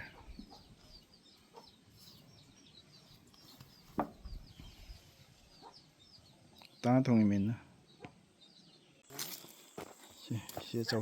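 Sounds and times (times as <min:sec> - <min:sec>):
chickens chirping: 0:00.0 - 0:06.9.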